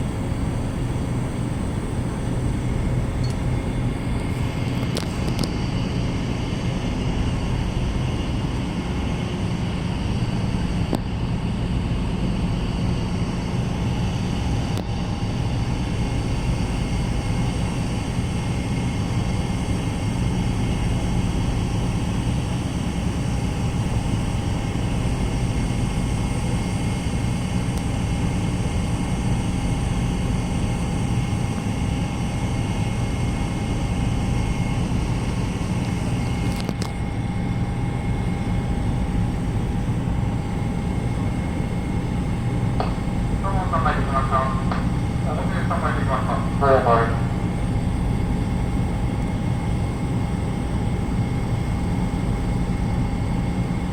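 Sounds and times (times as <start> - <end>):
ship engines droning: 0.0 - 10.8, 38.9 - 49.4
faint steady whines: 0.0 - 53.9.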